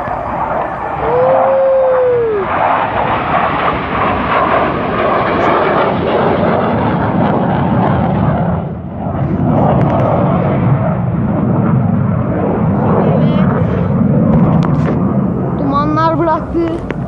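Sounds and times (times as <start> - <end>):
rising and falling tone: 0.0 - 3.5
jet engine roaring: 0.0 - 17.0.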